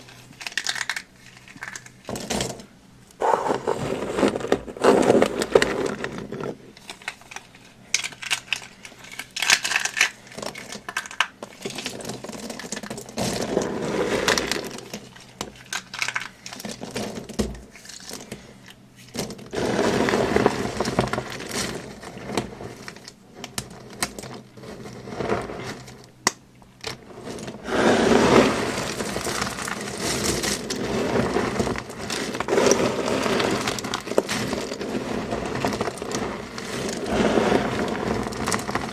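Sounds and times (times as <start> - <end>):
dry material crunching by hand: 3.2 - 6.6, 27.0 - 38.9.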